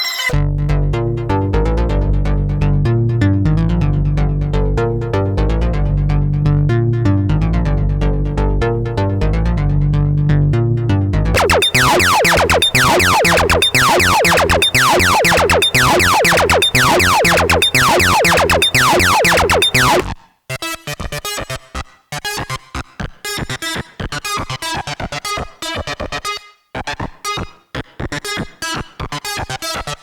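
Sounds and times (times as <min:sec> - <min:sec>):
short clipped synthesizer notes: 0:11.4 - 0:20.0
synthesizer bass line: 0:11.4 - 0:20.0
synthesizer notes sweeping down: 0:11.4 - 0:20.0.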